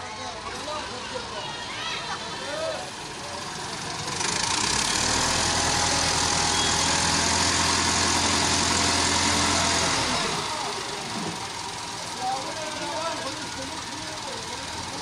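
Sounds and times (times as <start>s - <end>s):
tractor diesel engine running: 0.2s - 15.0s.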